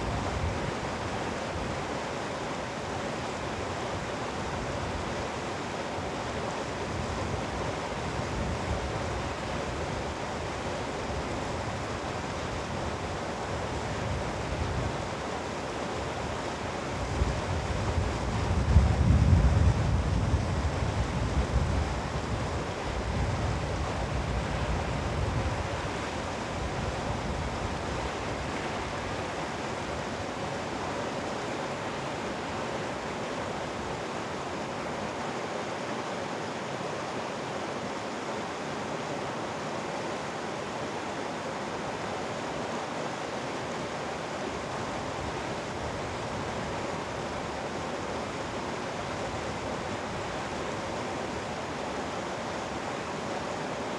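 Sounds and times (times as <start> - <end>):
stream rushing over rocks: 0.0 - 18.7, 20.3 - 53.9
wind rumble on microphone: 16.9 - 29.2.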